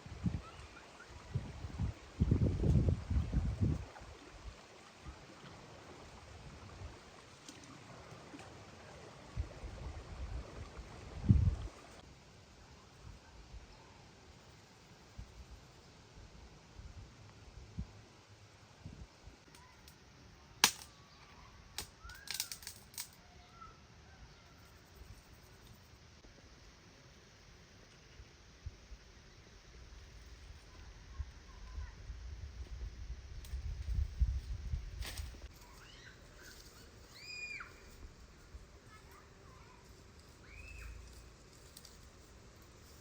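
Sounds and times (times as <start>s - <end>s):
outdoor background noise: 0.0s - 43.0s
faint bird chirps: 0.3s - 1.4s, 20.9s - 22.5s, 23.2s - 25.8s, 35.6s - 38.0s, 38.9s - 41.2s.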